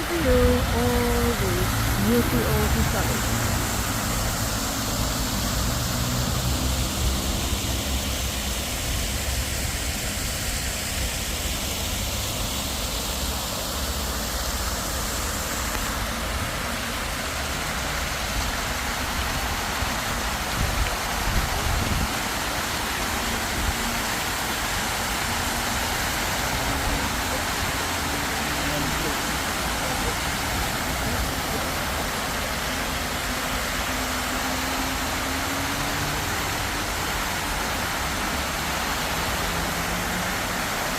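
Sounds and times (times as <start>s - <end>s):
water fountain splashing: 0.0s - 40.9s.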